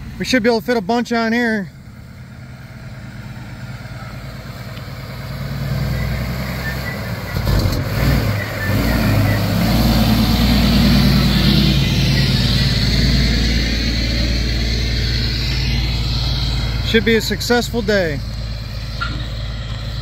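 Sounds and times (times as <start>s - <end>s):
truck diesel engine running: 0.0s - 20.0s.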